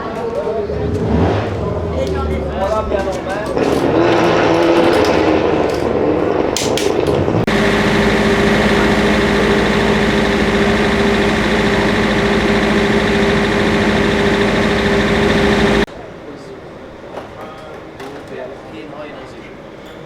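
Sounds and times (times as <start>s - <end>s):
engine idling: 7.5s - 15.9s.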